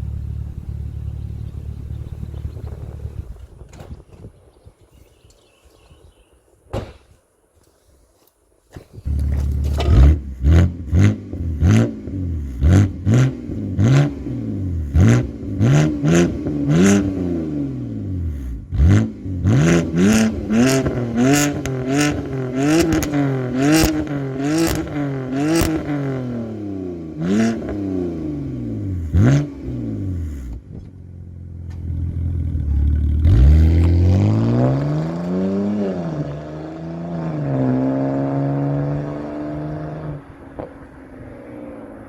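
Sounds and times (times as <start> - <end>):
car engine revving with exhaust cracks: 8.8 - 42.0.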